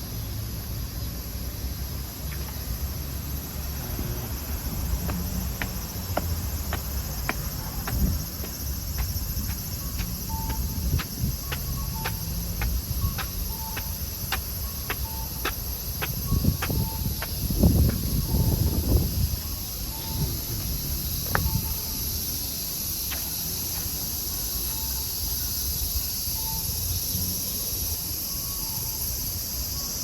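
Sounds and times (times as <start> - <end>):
insects chirring: 0.0 - 30.0
sharp ticks: 5.0 - 18.1.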